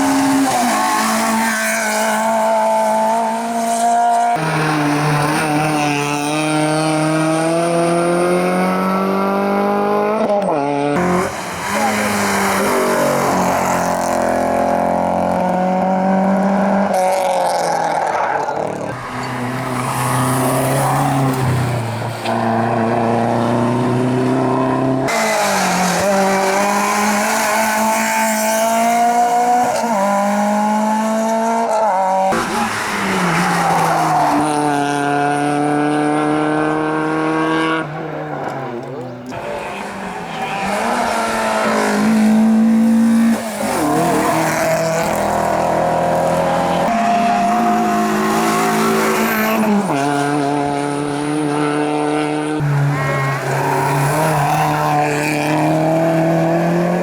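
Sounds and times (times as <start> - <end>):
race car engines revving: 0.0 - 57.0
tyre squeal: 18.2 - 21.4.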